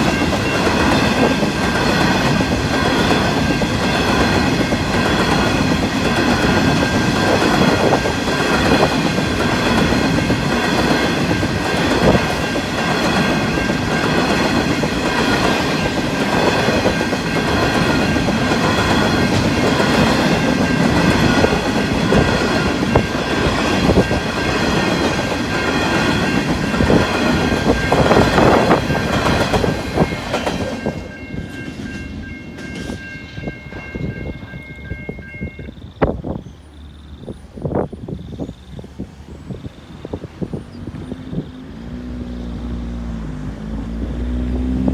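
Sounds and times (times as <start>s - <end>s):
train wheels clacking on rail joints: 0.0s - 44.9s
level crossing bells ringing: 9.8s - 35.8s.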